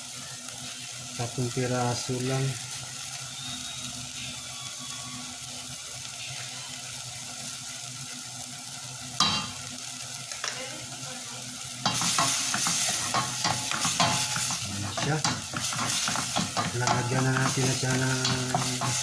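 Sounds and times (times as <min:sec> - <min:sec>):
chicken sizzling in a pan: 0:00.0 - 0:19.0
utensil scraping a pan: 0:11.9 - 0:19.0.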